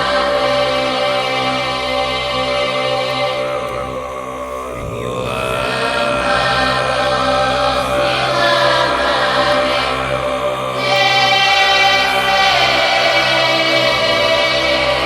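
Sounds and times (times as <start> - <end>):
throat singing: 2.9 - 15.0.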